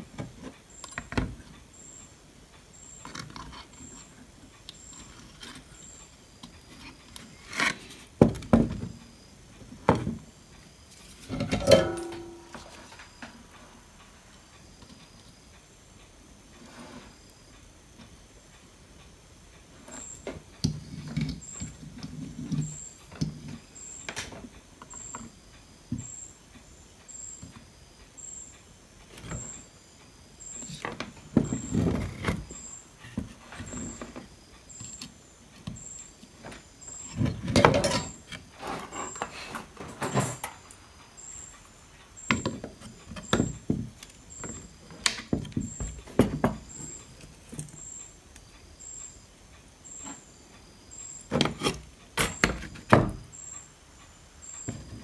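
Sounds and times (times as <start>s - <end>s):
tools clicking and scraping: 11.0s - 13.0s
tools clattering: 11.2s - 13.0s, 38.8s - 40.7s.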